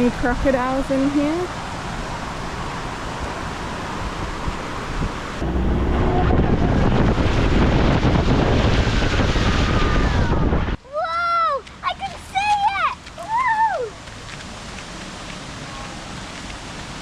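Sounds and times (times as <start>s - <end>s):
wind buffeting microphone: 0.0s - 10.8s
rushing splashing water: 0.0s - 17.0s.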